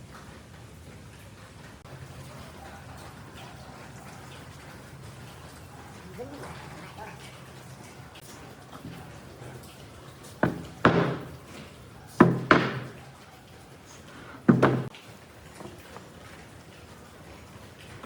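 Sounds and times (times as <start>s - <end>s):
heavy knocks with ringing tail: 10.4s - 11.4s, 12.2s - 13.0s.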